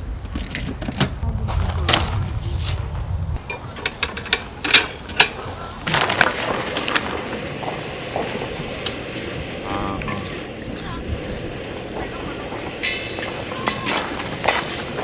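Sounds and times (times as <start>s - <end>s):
camping gear clicks and knocks: 3.4s - 10.5s.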